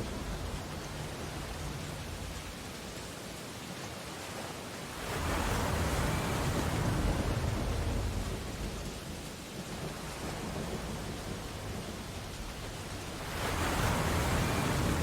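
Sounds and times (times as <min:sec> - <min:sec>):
steady ocean surf: 0:00.0 - 0:15.0
wave breaking: 0:09.9 - 0:15.0.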